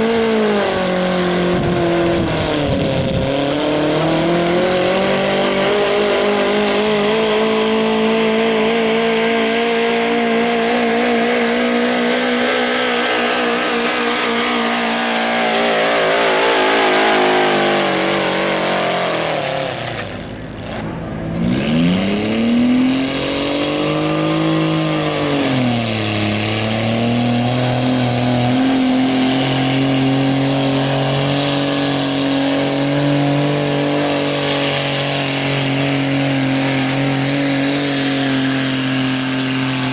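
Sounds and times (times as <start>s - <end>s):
garden tractor engine revving: 0.0s - 39.9s.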